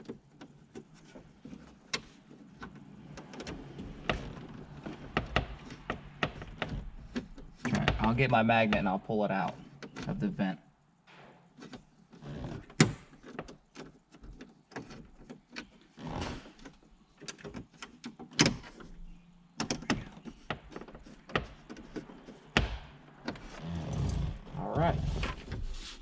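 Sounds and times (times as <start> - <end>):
rustling: 23.4 - 26.0.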